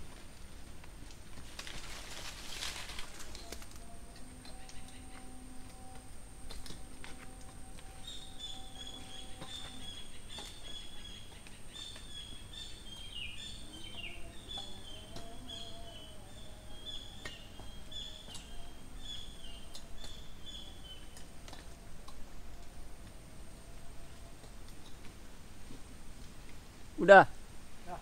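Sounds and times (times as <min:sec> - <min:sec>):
bird chirping: 0:03.2 - 0:21.7.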